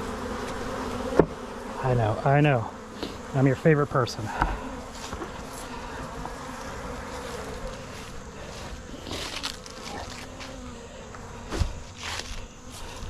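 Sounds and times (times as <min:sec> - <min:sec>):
bees buzzing: 0:00.0 - 0:13.0
hive knocks and rustles: 0:00.1 - 0:01.5, 0:04.3 - 0:13.0.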